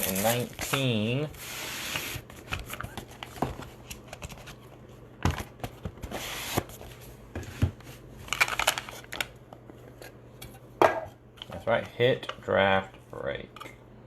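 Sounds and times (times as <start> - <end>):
wrapping tearing and crinkling: 0.0 - 0.9, 8.3 - 9.3.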